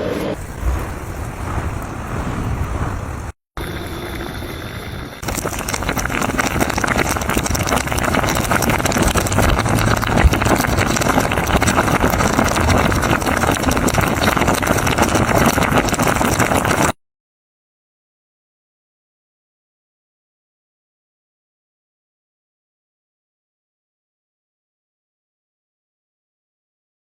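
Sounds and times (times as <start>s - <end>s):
food sizzling in a pot: 5.2s - 12.3s.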